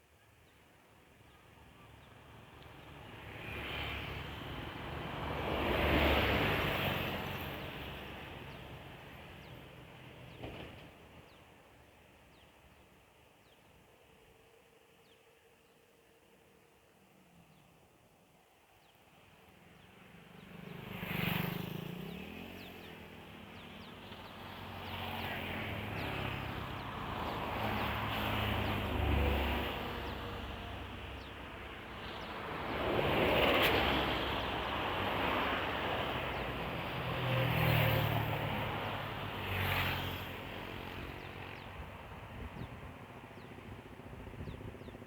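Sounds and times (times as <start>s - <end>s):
vehicles passing on highway: 2.2s - 11.6s, 19.2s - 45.0s.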